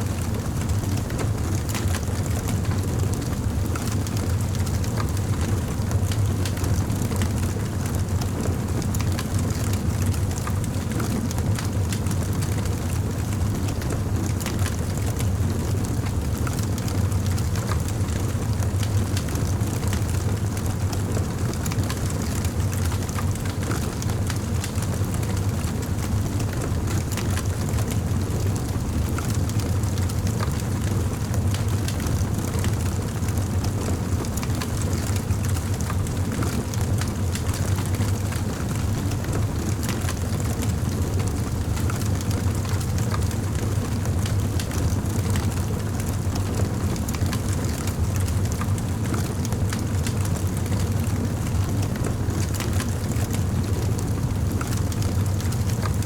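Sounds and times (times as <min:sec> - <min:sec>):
campfire flames rumbling: 0:00.1 - 0:56.0
fire crackling and popping: 0:33.0 - 0:38.6, 0:39.2 - 0:56.0.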